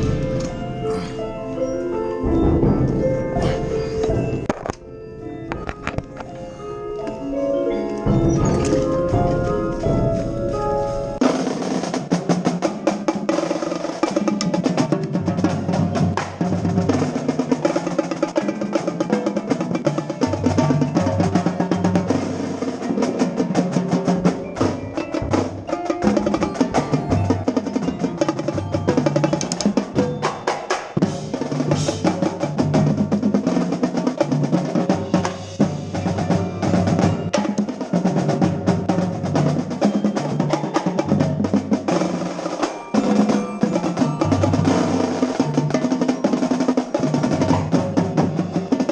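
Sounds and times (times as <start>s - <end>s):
tenor drums: 0.0s - 48.9s
snare drum rolls: 8.1s - 48.9s.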